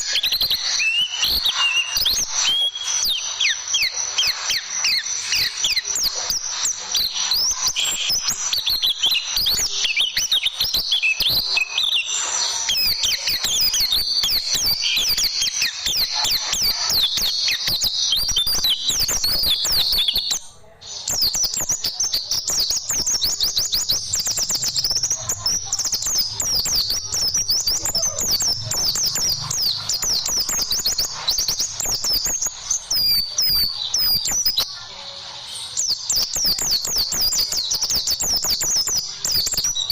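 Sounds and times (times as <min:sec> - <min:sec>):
bird chirps and trills: 0:00.0 - 0:39.9.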